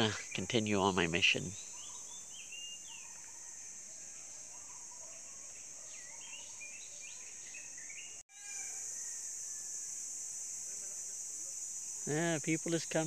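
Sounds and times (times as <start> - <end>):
birds chirping: 0.0 - 8.2
insects droning: 0.0 - 13.0.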